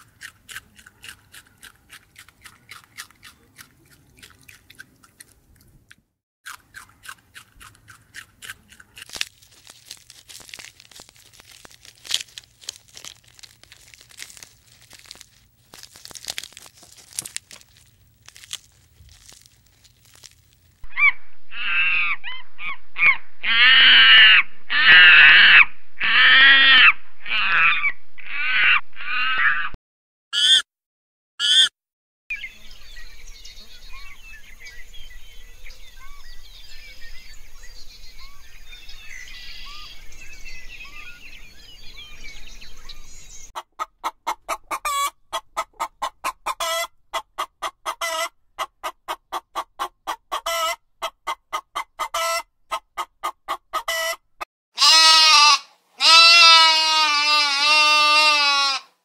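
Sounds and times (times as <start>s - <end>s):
rabbits chewing crunchy greens: 0.0s - 20.9s
rustling and chewing leaves: 0.0s - 20.9s
high-pitched monkey calls: 30.4s - 30.6s, 31.4s - 31.7s.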